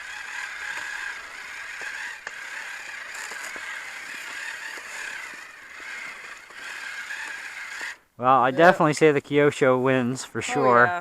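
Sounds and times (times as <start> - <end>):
plastic tracks and gears clicking: 0.0 - 8.0
toy vehicle electric motor whine: 0.0 - 8.0.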